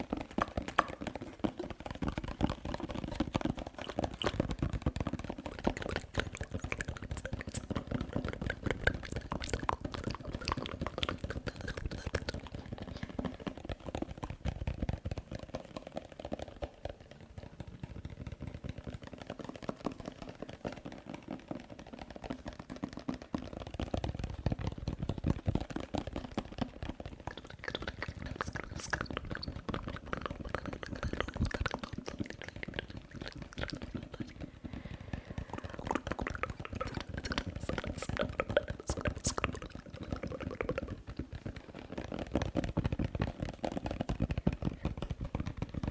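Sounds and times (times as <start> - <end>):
wet mouth clicks and smacks: 0.2 - 13.5, 27.3 - 40.9.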